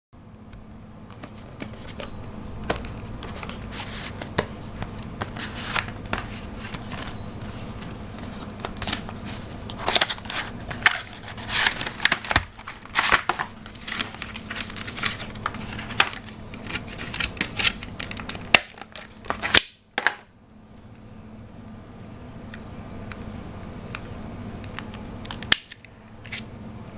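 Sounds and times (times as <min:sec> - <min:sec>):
steady low hum: 0:00.2 - 0:26.9
packaging crinkling and clicking: 0:01.1 - 0:20.2.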